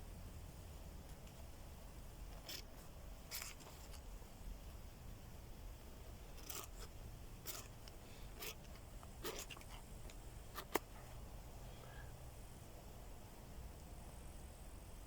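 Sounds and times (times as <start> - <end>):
hand scrapes and rustles: 2.4 - 4.1.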